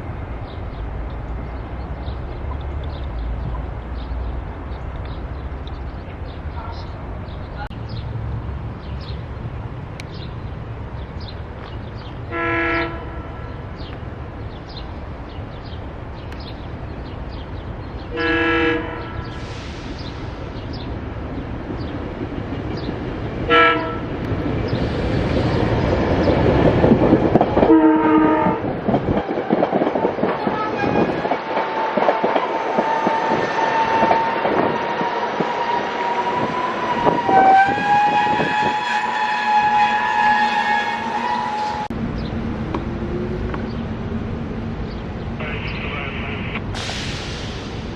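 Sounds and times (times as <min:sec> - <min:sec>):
train horn blasts: 0:12.3 - 0:13.5, 0:18.1 - 0:19.5, 0:23.5 - 0:24.1, 0:27.7 - 0:28.7, 0:30.5 - 0:31.2, 0:32.9 - 0:41.9.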